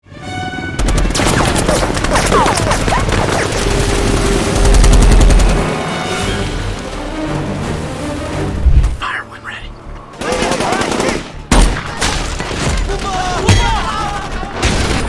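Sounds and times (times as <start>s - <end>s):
automatic gunfire: 0.8s - 5.8s, 10.2s - 12.0s.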